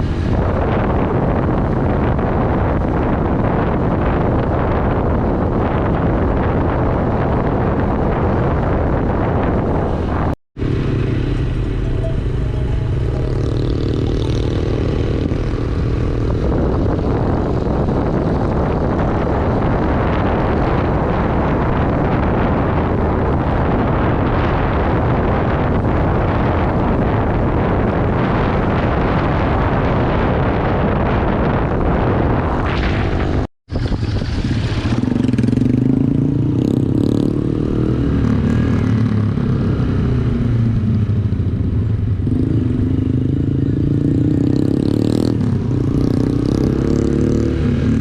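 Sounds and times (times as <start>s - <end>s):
wind rushing over microphone: 0.0s - 48.0s
motorcycle engine running: 10.6s - 20.4s.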